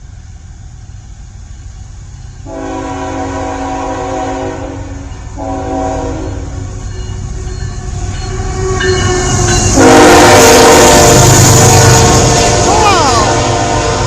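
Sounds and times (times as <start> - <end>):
train rumbling: 0.0 - 14.0
locomotive air horn blasts: 2.5 - 6.7, 8.5 - 14.0.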